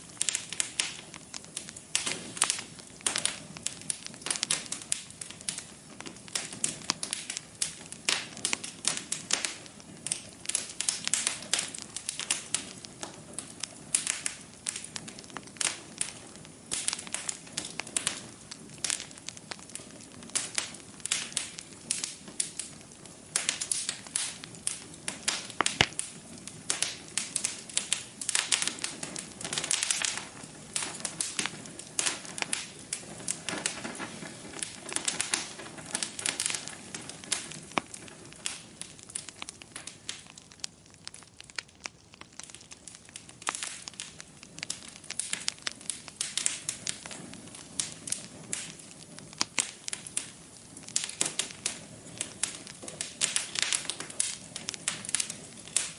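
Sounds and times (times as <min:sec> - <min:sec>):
wood fire crackling and popping: 0:00.0 - 0:55.9.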